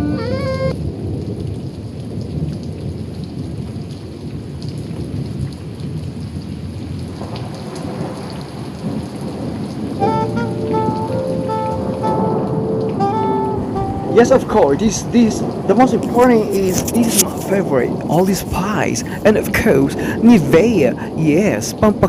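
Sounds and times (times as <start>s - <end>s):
music: 0.0s - 0.8s, 10.0s - 14.9s
heavy rain: 0.0s - 22.0s
thunder rumbling: 0.0s - 22.0s.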